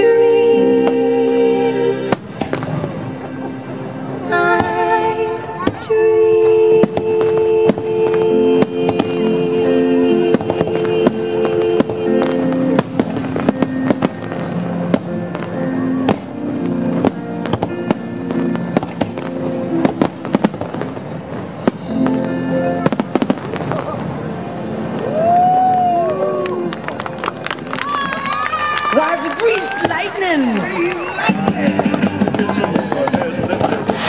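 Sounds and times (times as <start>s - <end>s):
soundtrack music in long held notes: 0.0s - 29.7s
fireworks bursting and crackling: 2.1s - 3.7s, 6.8s - 25.6s, 27.2s - 34.0s.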